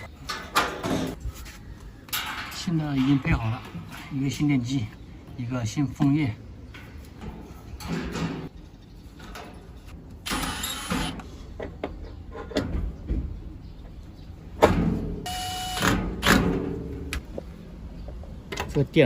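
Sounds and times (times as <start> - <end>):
clattering and scraping of metal parts: 0.0 - 4.4, 6.6 - 13.0.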